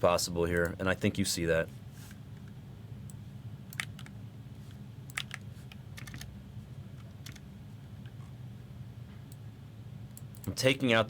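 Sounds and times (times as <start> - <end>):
low steady hum: 0.0 - 11.0
keyboard and mouse clicks: 3.7 - 4.1, 5.1 - 5.4, 6.0 - 6.3, 7.0 - 7.4.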